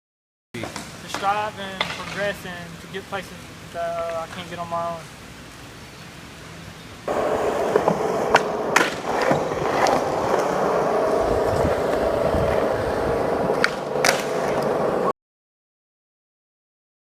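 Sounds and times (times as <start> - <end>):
skateboard clacks: 0.6 - 2.4, 7.1 - 15.1
skateboard wheels rolling on pavement: 0.6 - 5.2, 6.4 - 15.1.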